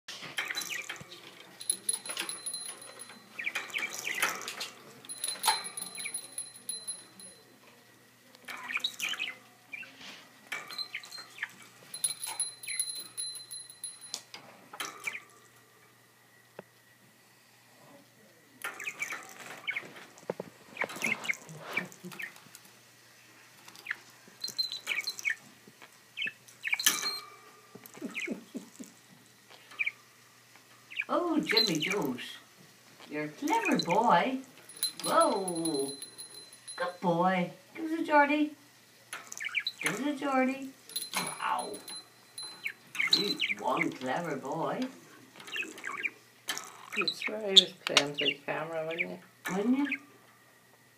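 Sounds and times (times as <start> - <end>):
budgie chirping: 5.1 - 7.2, 41.3 - 43.9
clicks and rattles in cage: 10.5 - 11.2, 26.8 - 27.3
budgerigar chirping and chattering: 39.4 - 39.9, 45.5 - 49.2.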